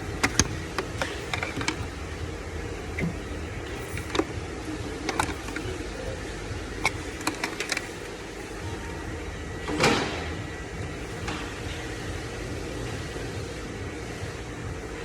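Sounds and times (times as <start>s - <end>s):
low hum: 0.0s - 15.0s
clicks of hand work on engine parts: 0.1s - 2.0s, 5.0s - 5.7s, 6.8s - 8.0s.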